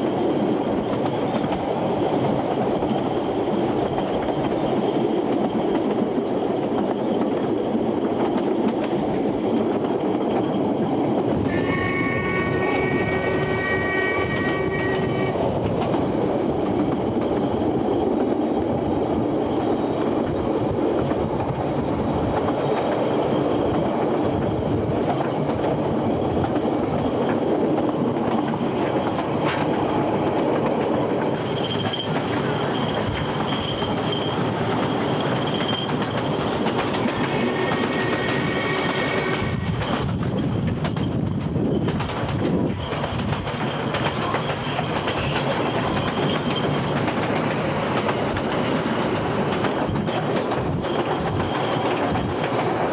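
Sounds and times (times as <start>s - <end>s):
train running noise: 0.0s - 52.9s
high wheel squeal: 11.5s - 15.4s, 31.3s - 36.6s, 37.2s - 40.0s, 42.7s - 52.2s
train whistle chord: 11.5s - 15.4s.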